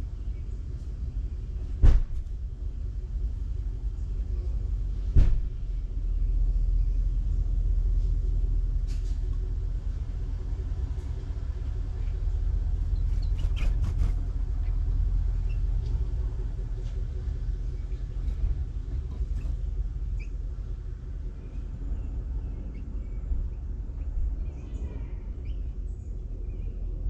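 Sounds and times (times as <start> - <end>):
steady low rumble: 0.0 - 27.0
faint bird chirps: 14.6 - 15.7, 19.3 - 20.4, 21.5 - 26.9.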